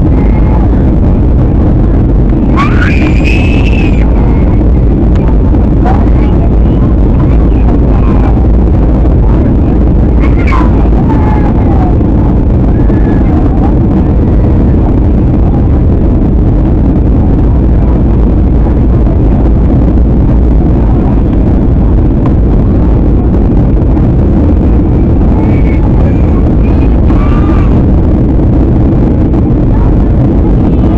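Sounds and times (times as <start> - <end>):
airliner cabin jet rumble: 0.0 - 30.9.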